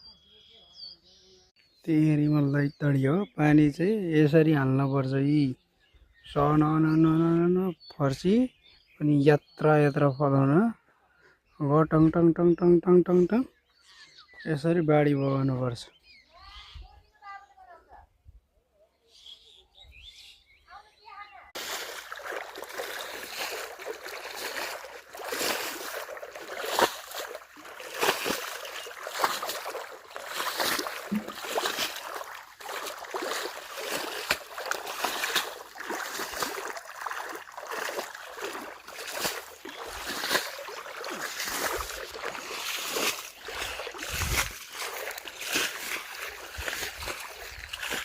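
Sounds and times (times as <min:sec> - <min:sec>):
water splashing and sloshing: 0:21.6 - 0:48.0.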